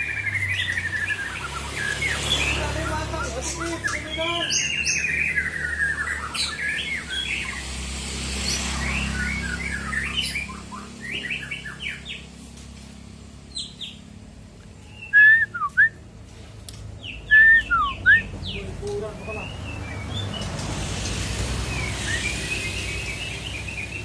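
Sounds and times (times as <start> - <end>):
bird singing chirps and whistles: 0.0 - 7.7, 8.3 - 12.2, 14.8 - 16.0, 17.0 - 20.5, 21.7 - 24.0.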